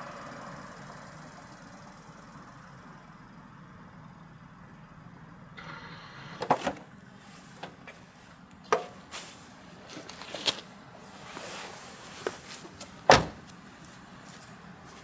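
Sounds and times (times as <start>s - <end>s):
vehicle engine idling: 0.0s - 9.9s
vehicle door clunks and clicks: 6.4s - 6.9s, 7.6s - 8.0s, 12.8s - 13.5s.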